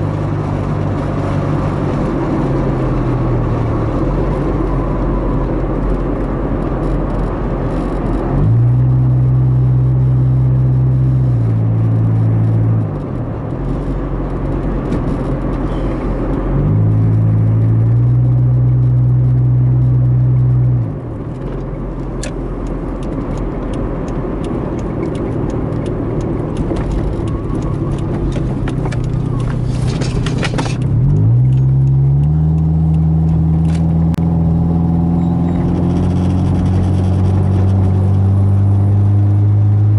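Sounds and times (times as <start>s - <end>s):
car engine revving: 0.0s - 39.9s
tyre and road noise: 0.0s - 39.9s.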